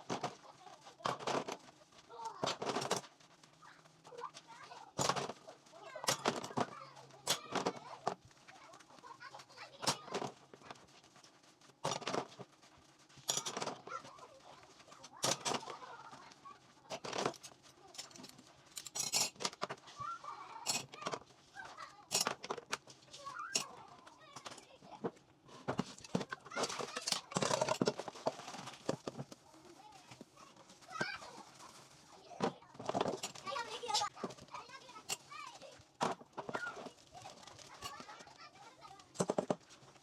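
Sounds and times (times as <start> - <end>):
dishes and utensils clinking: 6.0 - 7.8, 11.8 - 12.4, 13.2 - 16.1, 16.9 - 19.8, 20.6 - 22.8, 23.4 - 24.7, 25.7 - 29.3, 32.8 - 35.4.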